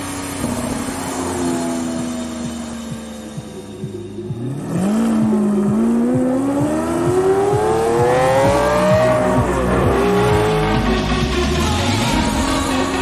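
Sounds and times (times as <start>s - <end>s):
sports car engine accelerating: 0.0s - 13.0s
regular low thuds: 2.3s - 11.0s.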